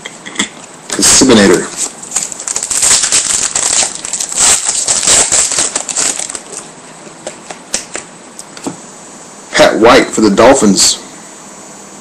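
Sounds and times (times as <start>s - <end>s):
foil wrapper crinkling: 1.0s - 8.0s.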